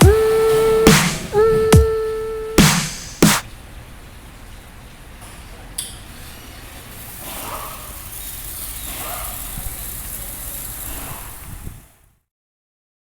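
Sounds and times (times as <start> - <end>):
car wash equipment hissing: 0.0 - 12.0.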